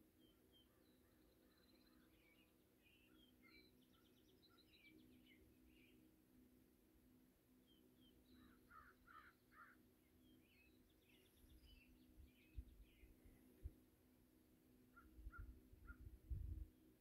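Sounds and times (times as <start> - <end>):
small birds chirping: 7.7 - 13.4.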